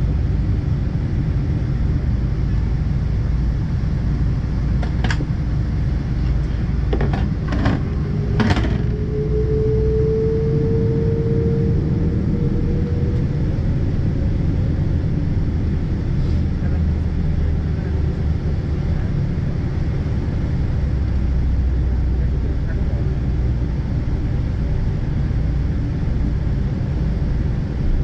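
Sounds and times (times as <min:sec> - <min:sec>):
aircraft cabin rumble: 0:00.0 - 0:28.0
mid-pitched whine: 0:02.1 - 0:16.0.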